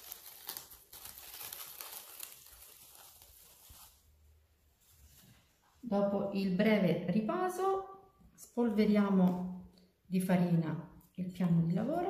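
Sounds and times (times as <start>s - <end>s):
plastic cling film rustling: 0.0s - 5.7s.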